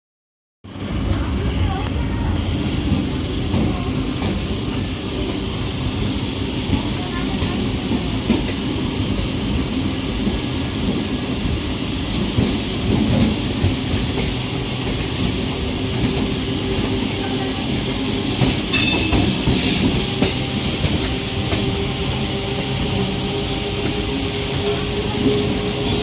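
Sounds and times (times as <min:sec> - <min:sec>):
electric train rumble and hum: 0:00.6 - 0:26.0
wheels clacking over rail joints: 0:18.3 - 0:21.8.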